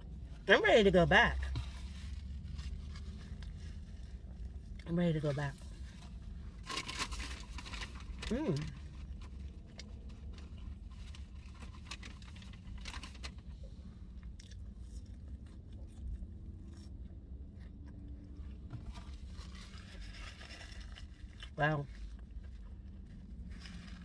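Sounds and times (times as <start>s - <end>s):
person chewing food: 14.1s - 18.7s.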